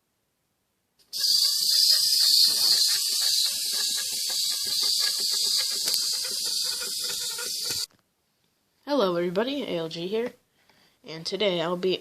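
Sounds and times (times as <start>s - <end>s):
high-pitched hiss: 1.1s - 7.9s.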